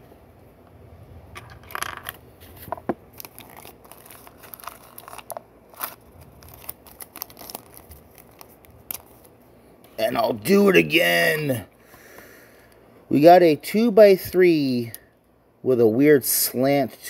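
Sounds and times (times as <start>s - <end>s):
plastic pieces rustling: 1.4s - 9.3s.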